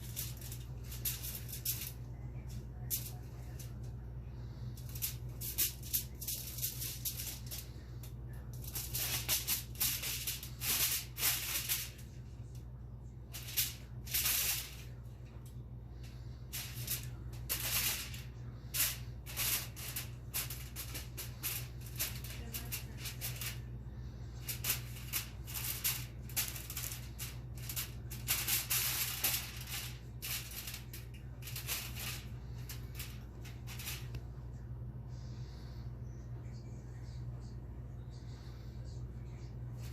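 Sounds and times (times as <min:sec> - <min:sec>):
aluminum foil crinkling: 0:00.0 - 0:02.0, 0:04.8 - 0:12.1, 0:13.3 - 0:15.0, 0:16.5 - 0:23.7, 0:24.4 - 0:34.1
steady low hum: 0:00.0 - 0:39.9.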